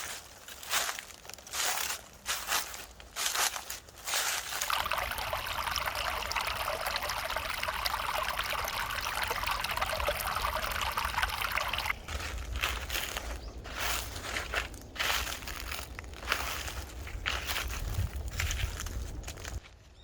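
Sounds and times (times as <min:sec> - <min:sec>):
footsteps crunching dry leaves: 0:00.0 - 0:04.8, 0:11.9 - 0:20.0
stream trickling: 0:03.2 - 0:19.6.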